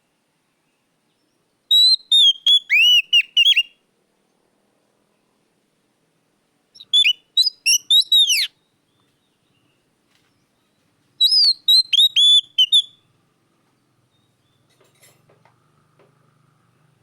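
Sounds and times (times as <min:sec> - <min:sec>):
bird singing whistled notes: 0:00.6 - 0:03.8, 0:06.8 - 0:13.1.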